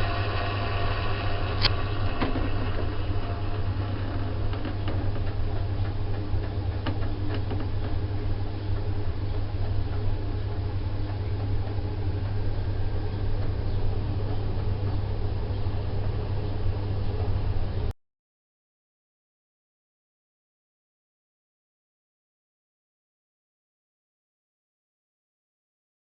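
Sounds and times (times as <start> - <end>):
gas boiler low drone: 0.0 - 18.0.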